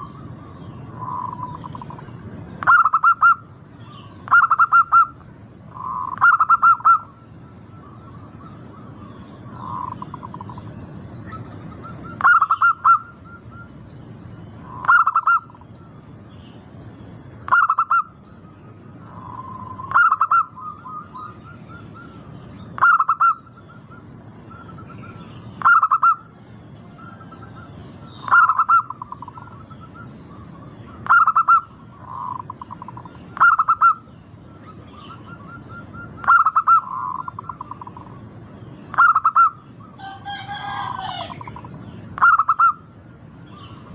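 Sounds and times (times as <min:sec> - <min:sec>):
dove cooing: 0:00.0 - 0:10.7, 0:11.3 - 0:13.7, 0:14.6 - 0:15.6, 0:19.0 - 0:22.2, 0:22.8 - 0:25.0, 0:26.9 - 0:38.2, 0:38.9 - 0:42.9.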